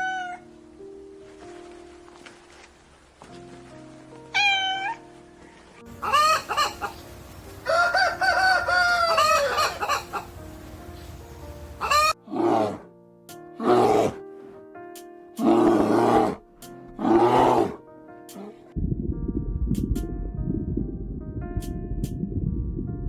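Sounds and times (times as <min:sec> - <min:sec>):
background music: 0:00.0 - 0:23.0
rooster crowing: 0:07.6 - 0:10.2.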